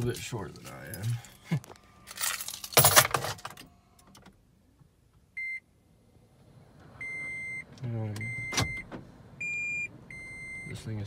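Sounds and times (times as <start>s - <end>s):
rustling and clattering in car seat: 2.1s - 4.4s.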